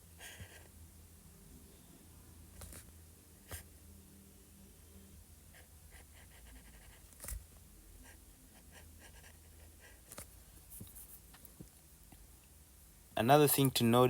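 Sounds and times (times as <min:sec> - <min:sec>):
pen scratching on paper: 0:00.2 - 0:00.7, 0:02.5 - 0:03.7, 0:05.5 - 0:11.2.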